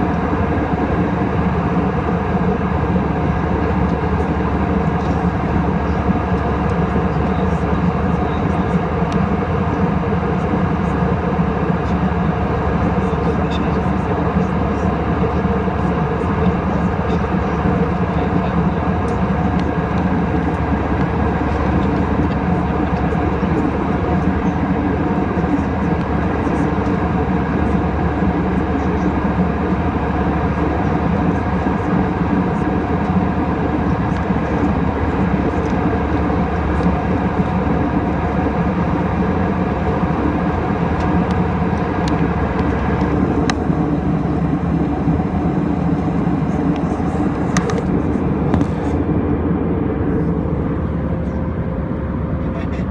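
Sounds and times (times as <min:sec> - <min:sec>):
airplane cabin engine roar: 0:00.0 - 0:52.9
faint cabin clicks and rattles: 0:40.3 - 0:49.1.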